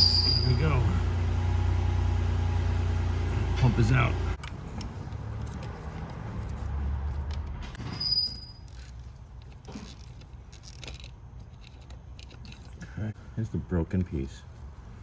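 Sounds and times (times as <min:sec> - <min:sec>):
high squeak: 0:00.0 - 0:00.6, 0:07.8 - 0:08.8.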